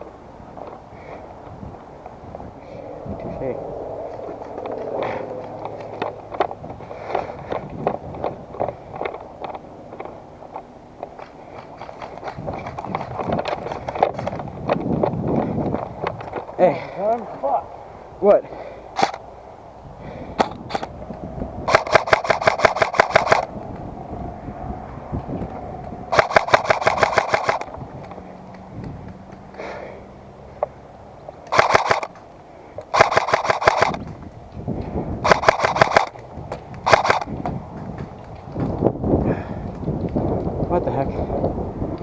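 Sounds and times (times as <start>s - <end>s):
airsoft rifle automatic bursts: 21.7s - 23.5s, 26.1s - 27.7s, 31.5s - 32.2s, 32.9s - 34.0s, 35.2s - 36.1s, 36.8s - 37.3s.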